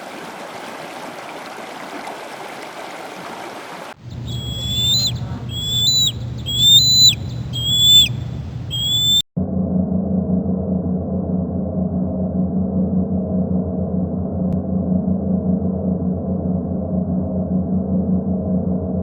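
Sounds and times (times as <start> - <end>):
stream rushing: 0.0 - 4.0
bird whistling calls: 4.0 - 9.2
low steady hum: 4.0 - 9.2.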